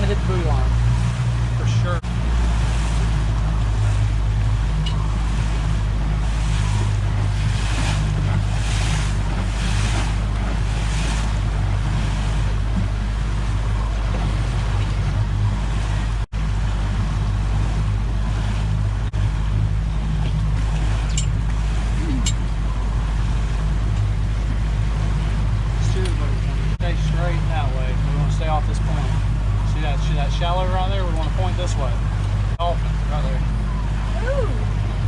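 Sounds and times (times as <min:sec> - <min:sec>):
wind on microphone: 0:00.0 - 0:26.8
boat hull splashing through water: 0:00.0 - 0:35.0
outboard motor running: 0:00.0 - 0:35.0.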